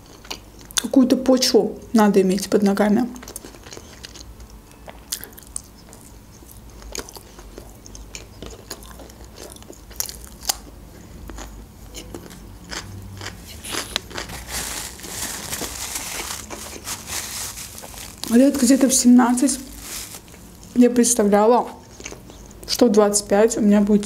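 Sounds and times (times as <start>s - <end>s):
chewing mouth sounds: 3.2s - 10.7s, 11.3s - 14.5s
crisp crunches: 12.7s - 20.8s.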